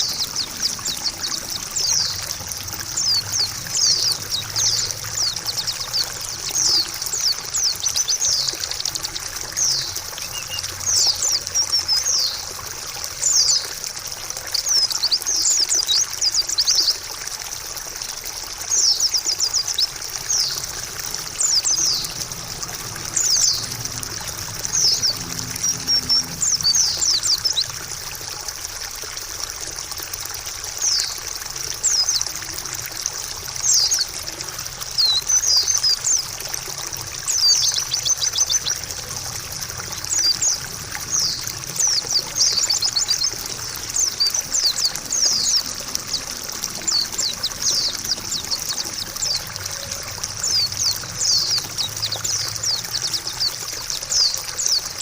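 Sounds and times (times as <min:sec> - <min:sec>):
bird chirping: 0:00.0 - 0:12.5, 0:18.7 - 0:27.7, 0:40.0 - 0:55.0
trickling water: 0:00.0 - 0:55.0.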